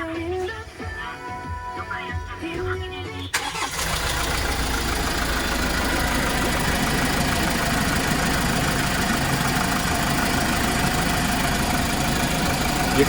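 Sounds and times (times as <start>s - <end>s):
truck engine idling: 3.3s - 13.0s.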